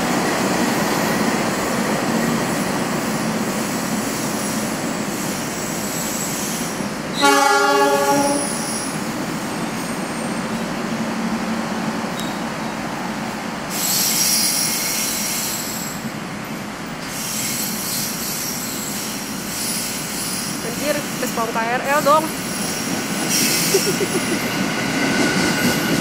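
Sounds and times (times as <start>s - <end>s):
rumble of trains: 0.0s - 26.0s
train wheels squealing: 2.2s - 7.4s, 8.3s - 10.6s, 12.1s - 12.5s, 13.7s - 21.4s, 22.1s - 26.0s
train horn: 7.1s - 8.7s.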